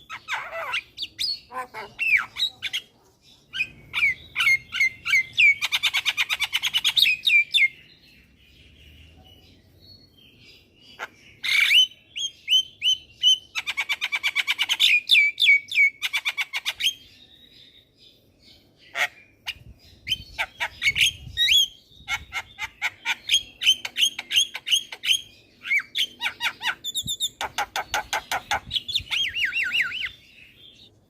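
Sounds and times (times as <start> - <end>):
bird singing fast chatter: 18.9 - 30.9.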